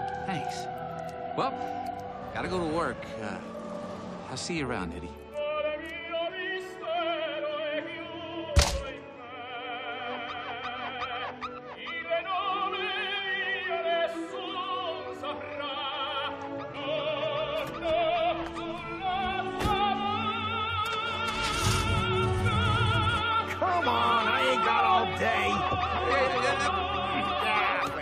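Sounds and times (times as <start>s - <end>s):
operatic singing with vibrato: 0.0s - 28.0s
sharp thump: 8.6s - 9.0s.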